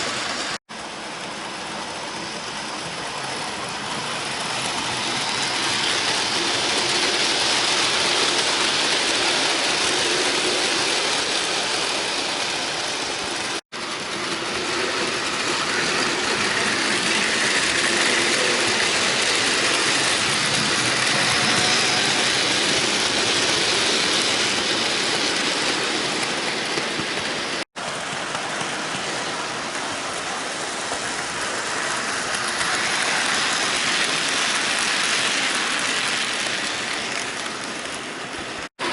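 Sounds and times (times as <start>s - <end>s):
model train wheels hissing on rails: 0.0s - 38.9s
model train motor whir: 14.2s - 25.4s.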